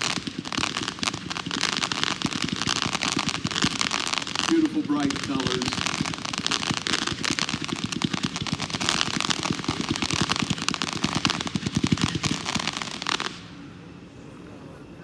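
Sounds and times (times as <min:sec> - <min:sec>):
fireworks barrage crackling: 0:00.0 - 0:13.9.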